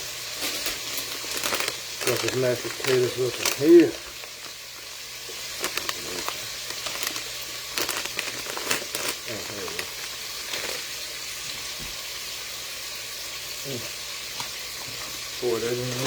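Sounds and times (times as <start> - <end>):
food sizzling in a pan: 0.0 - 16.0
utensils clicking and knocking: 0.4 - 4.9, 5.6 - 10.9.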